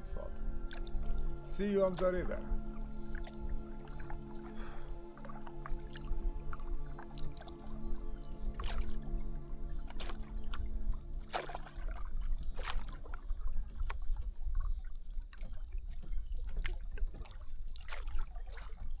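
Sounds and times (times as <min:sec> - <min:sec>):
steady low rumble: 0:00.0 - 0:08.2
canoe paddle splashing in water: 0:08.4 - 0:09.0, 0:09.6 - 0:19.0.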